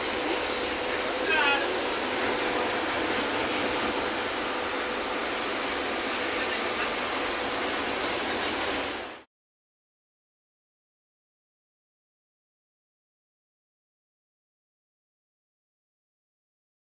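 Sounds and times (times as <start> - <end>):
heavy rain pouring: 0.0 - 9.2.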